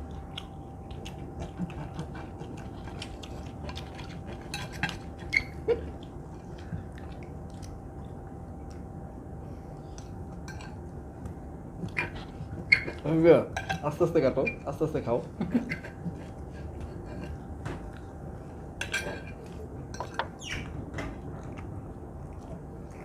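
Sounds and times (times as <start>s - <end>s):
cutlery clinking on plates: 18.8s - 20.3s.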